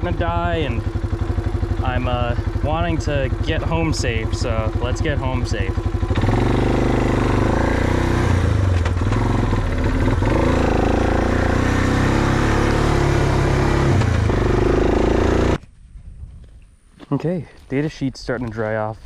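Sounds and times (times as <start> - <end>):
atv engine revving: 0.0 - 15.6.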